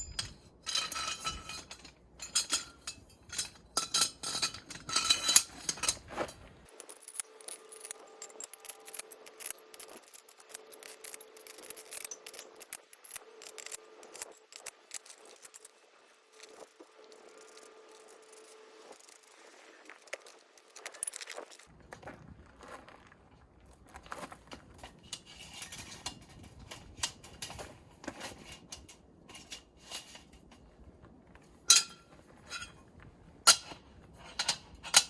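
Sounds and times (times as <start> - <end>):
hard objects clinking and knocking: 0.0 - 9.0.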